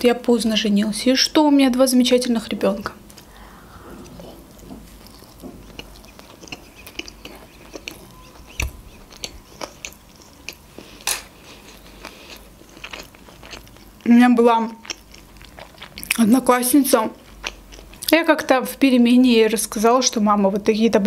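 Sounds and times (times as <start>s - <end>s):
chewing food: 3.1s - 14.1s, 14.7s - 16.4s, 17.1s - 18.2s.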